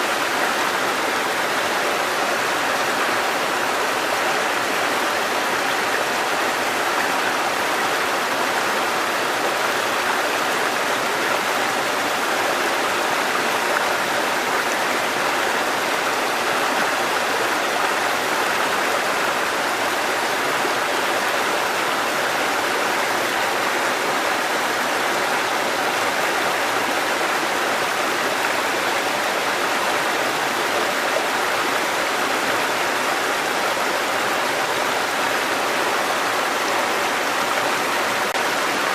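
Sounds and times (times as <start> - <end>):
stream water cascading over rocks: 0.0 - 38.9.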